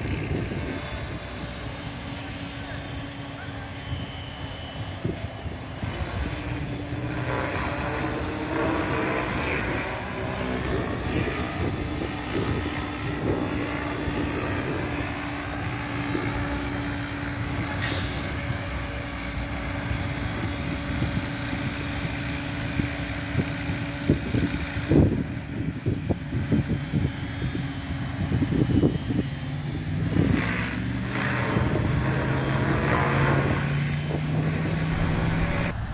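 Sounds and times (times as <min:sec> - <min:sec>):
electric motor whine: 0:00.0 - 0:35.9
rotor blades rushing: 0:04.7 - 0:17.7, 0:30.6 - 0:35.9.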